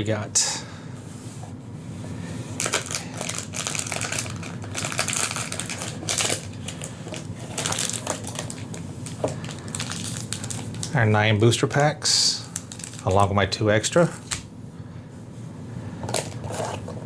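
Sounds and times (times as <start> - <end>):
steady low hum: 0.0 - 17.0
foil packs crinkling and rustling: 2.6 - 11.0, 12.4 - 13.3.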